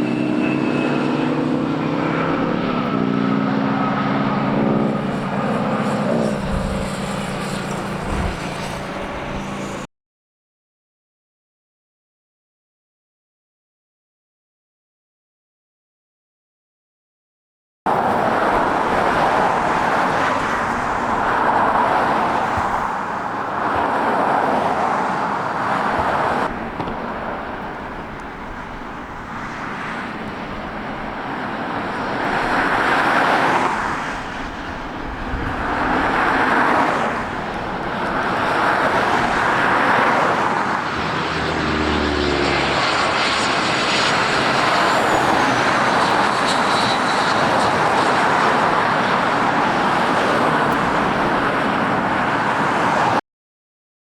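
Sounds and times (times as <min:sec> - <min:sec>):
jet airliner engine noise: 0:00.0 - 0:09.9, 0:17.9 - 0:53.2
passing road traffic: 0:00.0 - 0:09.9, 0:17.9 - 0:53.2
vehicle engine humming: 0:00.0 - 0:09.9, 0:17.9 - 0:49.3.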